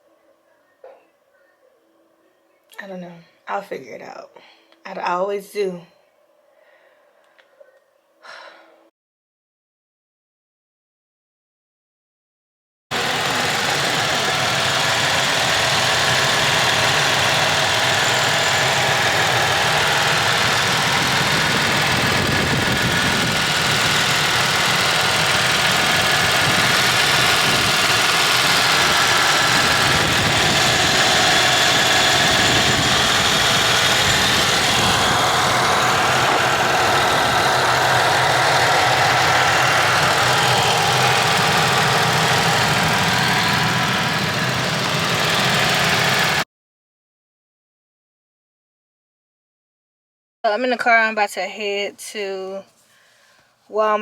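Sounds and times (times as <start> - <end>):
car engine idling: 12.9 - 46.4.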